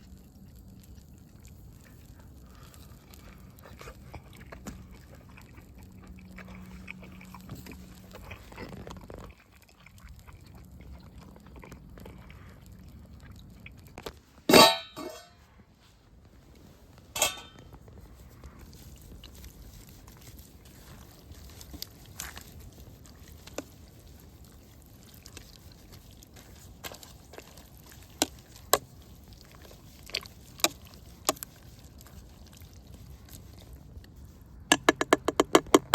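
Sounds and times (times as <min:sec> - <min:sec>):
small clicks and taps: 0:34.7 - 0:35.9.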